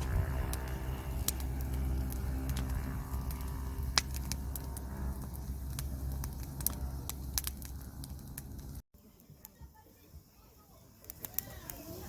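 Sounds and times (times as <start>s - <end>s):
steady low hum: 0.0s - 8.8s
firewood crackling and popping: 0.0s - 12.0s.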